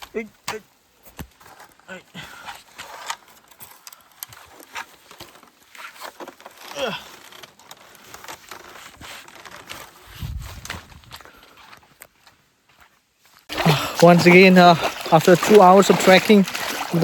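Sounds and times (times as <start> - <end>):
footsteps splashing through stream: 13.4 - 17.0
stream hissing: 13.5 - 17.0.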